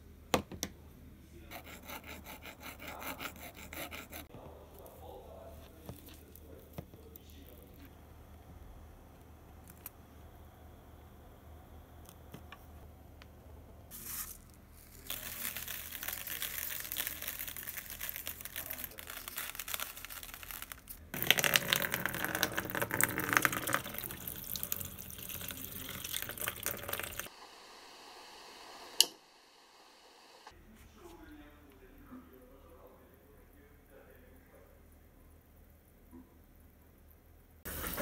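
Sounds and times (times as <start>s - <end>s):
water pouring into plastic tub: 15.0s - 27.3s.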